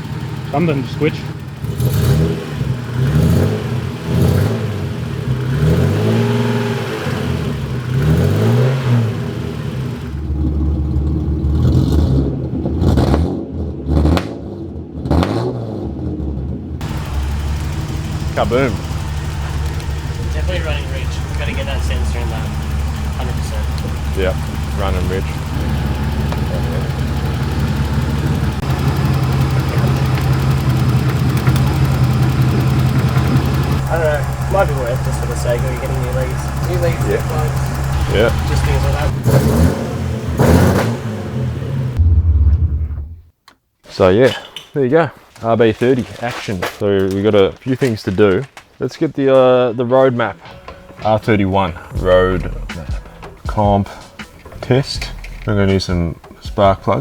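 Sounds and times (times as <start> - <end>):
car engine revving: 0.0 - 43.2, 51.6 - 57.0
sharp exhaust cracks: 16.8 - 43.2, 50.4 - 57.0.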